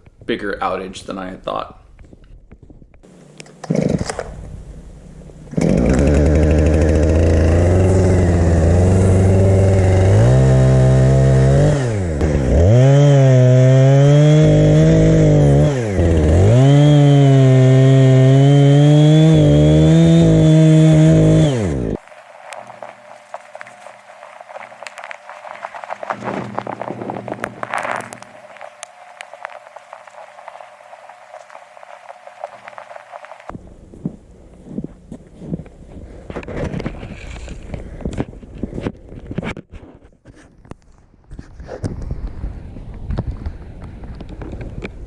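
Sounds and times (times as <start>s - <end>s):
chainsaw engine running: 5.5s - 33.5s.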